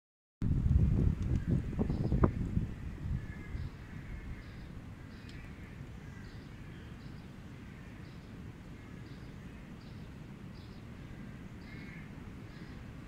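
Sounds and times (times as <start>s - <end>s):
wind on the microphone: 0.4s - 7.0s
distant birdsong: 1.3s - 13.0s.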